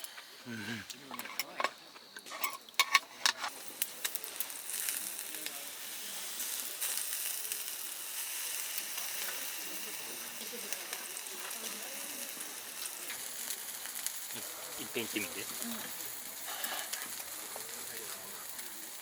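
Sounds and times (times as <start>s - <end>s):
meat sizzling: 0.0s - 19.0s.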